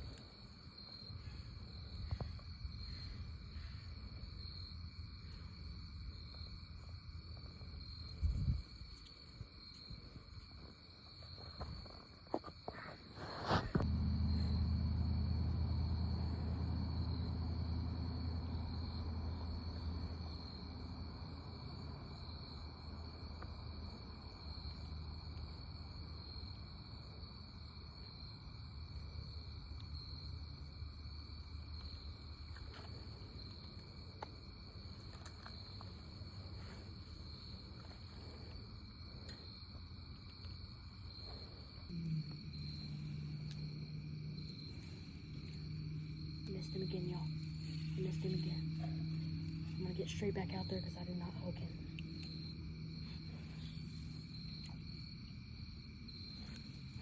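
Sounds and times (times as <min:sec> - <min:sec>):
crickets chirping: 0:00.0 - 0:57.0
low steady hum: 0:13.4 - 0:25.6, 0:28.6 - 0:57.0
low rumble: 0:13.7 - 0:20.0, 0:41.8 - 0:54.2.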